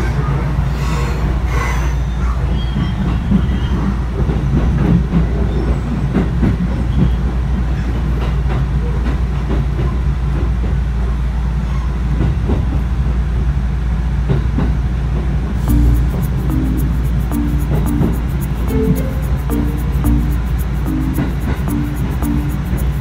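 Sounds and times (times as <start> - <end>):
train running rumble: 0.0 - 23.0.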